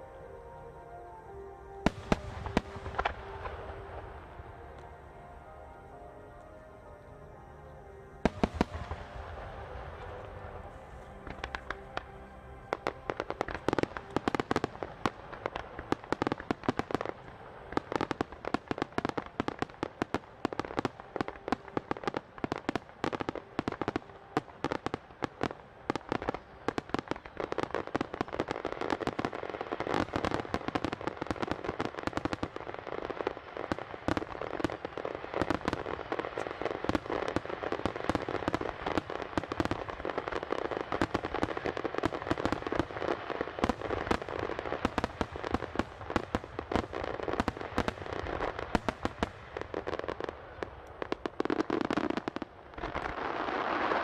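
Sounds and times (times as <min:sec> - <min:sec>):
fireworks bursting in rapid bangs: 0:12.8 - 0:50.3.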